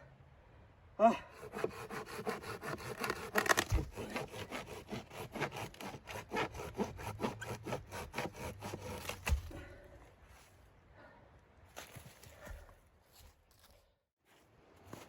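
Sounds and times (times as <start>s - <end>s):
hand saw cutting wood: 1.3s - 9.6s.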